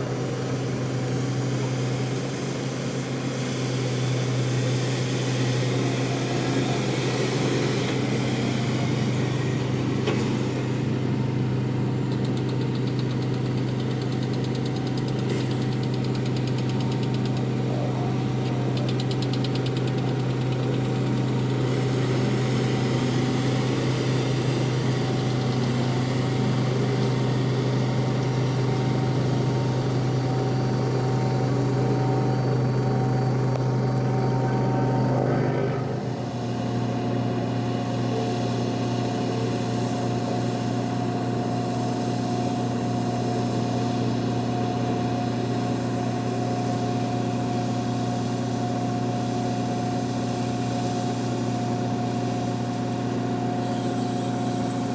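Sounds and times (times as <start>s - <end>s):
vehicle engine humming: 0.0s - 54.9s
faint rapid ticking: 18.7s - 21.6s.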